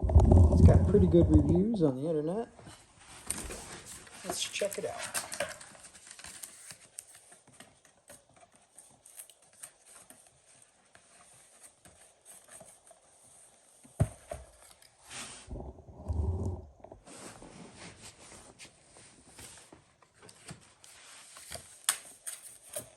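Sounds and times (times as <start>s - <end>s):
cardboard rustling: 2.7s - 15.4s.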